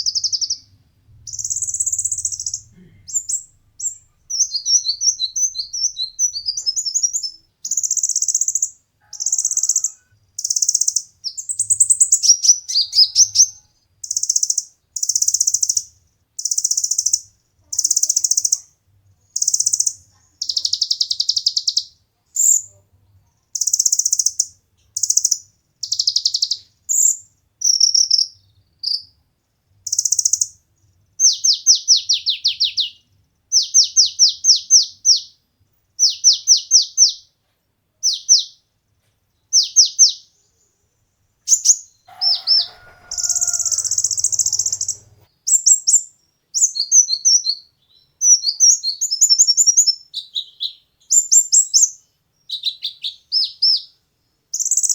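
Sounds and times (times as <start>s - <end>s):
bird singing buzzy trills: 0.0s - 18.6s, 41.5s - 54.0s
bird twittering falling notes: 42.1s - 45.2s.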